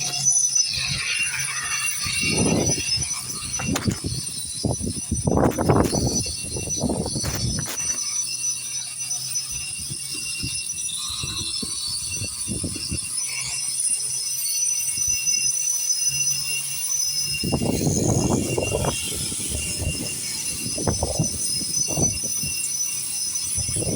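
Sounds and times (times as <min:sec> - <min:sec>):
power grinder grinding concrete: 0:00.0 - 0:23.9.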